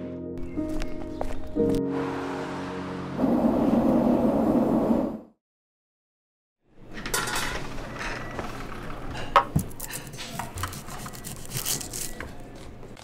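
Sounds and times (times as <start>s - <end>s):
dishes and utensils clinking: 7.0s - 8.3s.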